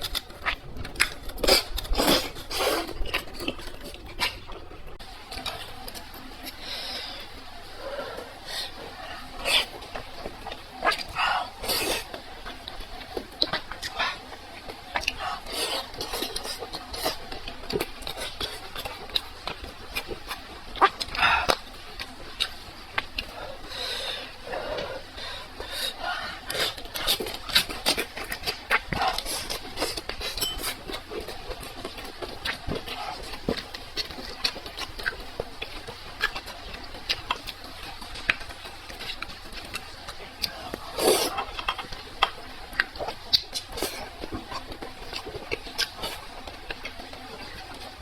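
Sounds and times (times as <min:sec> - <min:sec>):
person chewing: 0:00.0 - 0:48.0.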